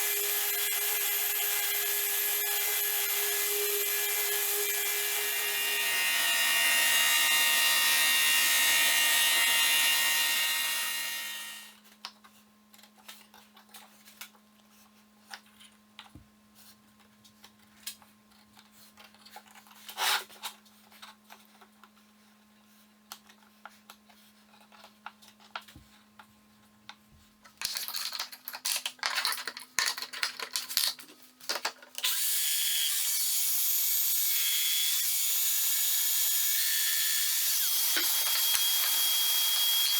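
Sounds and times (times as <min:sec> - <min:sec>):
electric power tool cutting wood: 0:00.0 - 0:11.7, 0:32.0 - 0:39.9.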